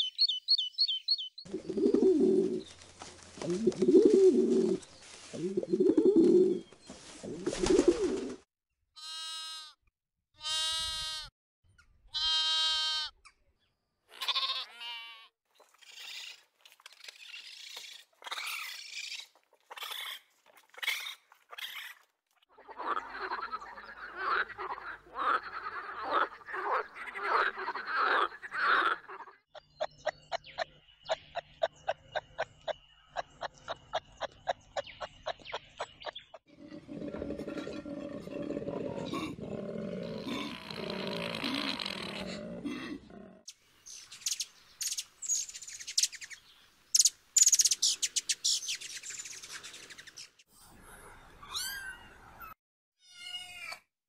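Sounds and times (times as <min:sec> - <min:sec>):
doves cooing: 0:01.5 - 0:08.4, 0:36.5 - 0:43.4
squeaks and chirps: 0:15.6 - 0:22.0, 0:51.4 - 0:53.8.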